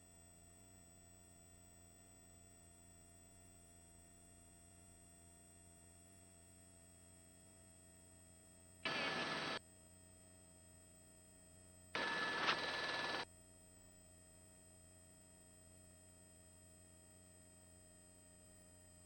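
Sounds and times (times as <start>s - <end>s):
buzzy hiss bursts: 8.9s - 9.6s, 12.0s - 13.2s
faint electrical hum: 8.9s - 9.6s, 12.0s - 13.2s.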